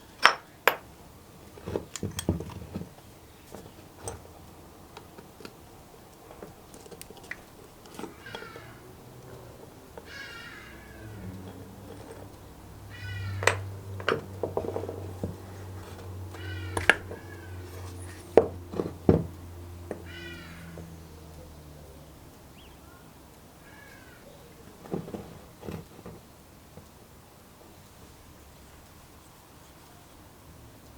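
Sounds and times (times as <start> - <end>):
cat meowing: 12.9 - 13.6
clicks and knocks: 13.4 - 20.0.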